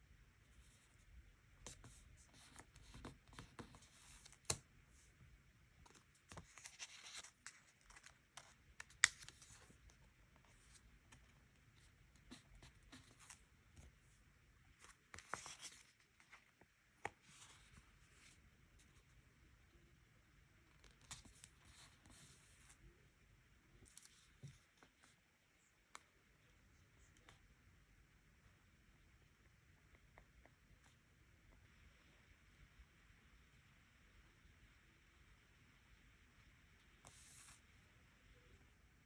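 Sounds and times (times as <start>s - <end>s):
paper rustling: 5.9s - 9.8s.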